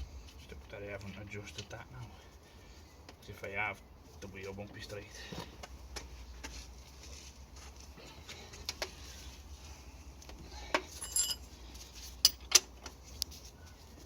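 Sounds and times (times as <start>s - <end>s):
metal tools clinking: 10.8s - 11.6s
metallic ring: 10.9s - 11.6s.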